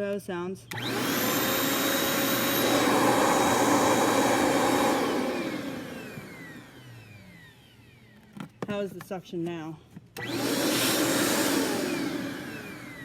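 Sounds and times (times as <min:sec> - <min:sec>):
vacuum motor spinning down: 0:00.7 - 0:08.2, 0:10.2 - 0:13.0
vacuum cleaner running: 0:00.7 - 0:08.3, 0:10.2 - 0:13.0.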